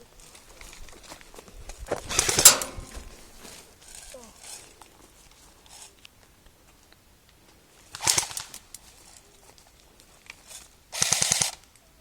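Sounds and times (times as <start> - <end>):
airsoft gun full-auto bursts: 10.9 - 11.6.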